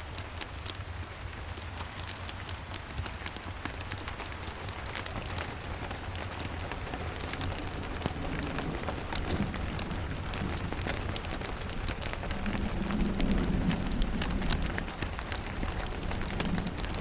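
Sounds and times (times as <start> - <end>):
rain hissing: 0.0 - 17.0
sharp ticks and crackles: 0.0 - 17.0
low rumble: 7.1 - 17.0.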